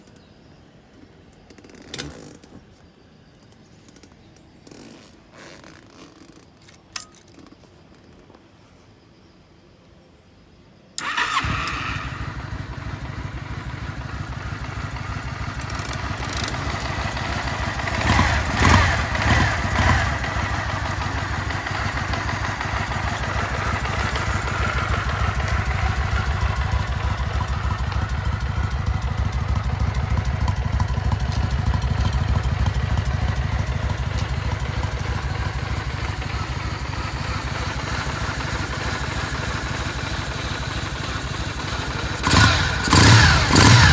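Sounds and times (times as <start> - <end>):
engine revving bursts: 11.0 - 43.9
motorcycle engine starting and idling: 11.0 - 43.9.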